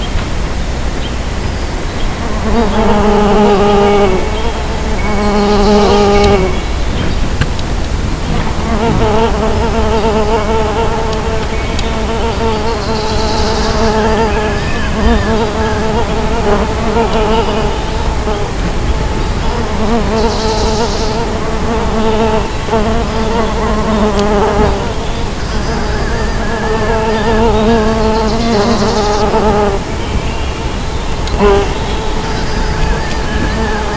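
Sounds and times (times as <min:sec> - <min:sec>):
bees buzzing in flight: 0:00.0 - 0:33.9.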